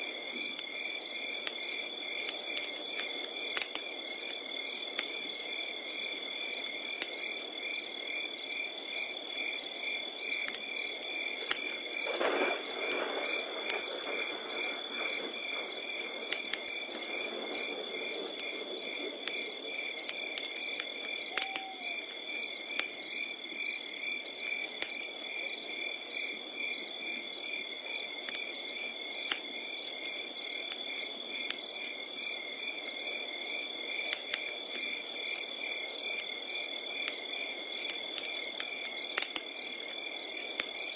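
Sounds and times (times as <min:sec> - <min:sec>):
crickets chirping: 0:00.0 - 0:40.9
wood fire crackling: 0:00.0 - 0:40.9
low animal call: 0:21.3 - 0:22.2.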